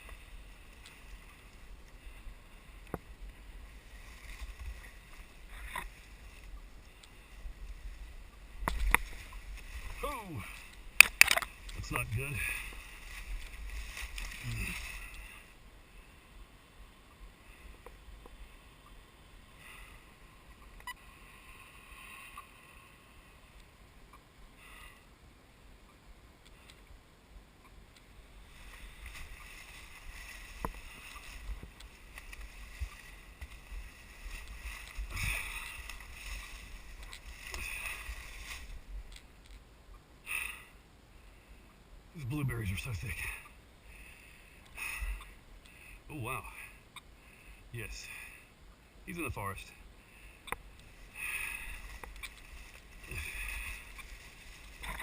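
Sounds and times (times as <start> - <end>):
bushes rustling as person pushes through: 0.0 - 15.7, 28.0 - 39.8, 50.6 - 55.0.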